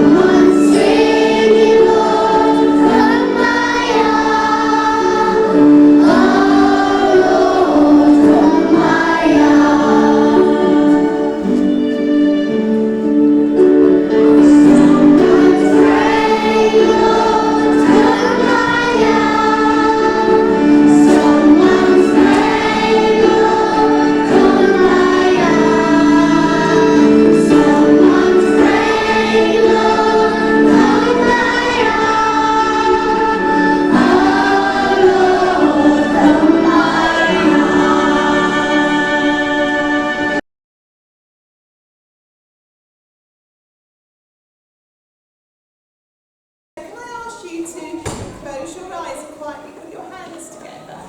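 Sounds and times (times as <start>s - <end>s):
group singing a hymn: 0.0s - 12.0s, 14.1s - 40.4s
instrumental accompaniment: 0.0s - 40.4s.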